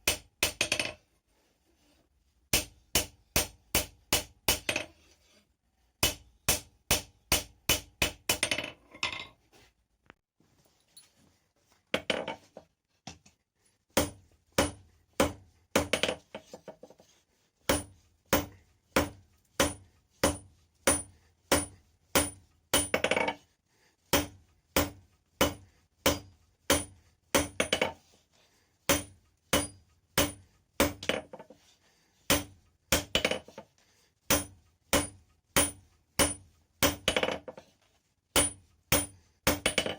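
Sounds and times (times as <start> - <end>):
hammer ringing on anvil: 28.9 - 30.4.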